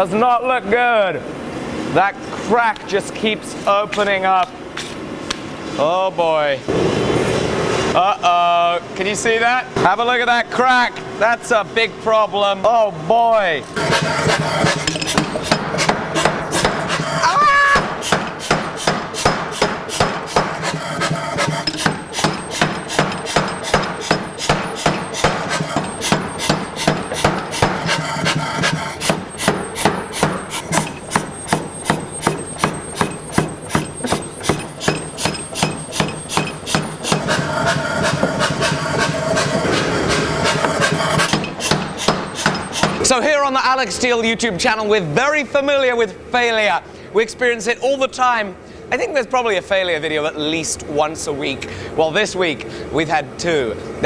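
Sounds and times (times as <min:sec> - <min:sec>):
steady hum: 0:13.0 - 0:43.2
hammer blows on hot steel: 0:13.7 - 0:43.2.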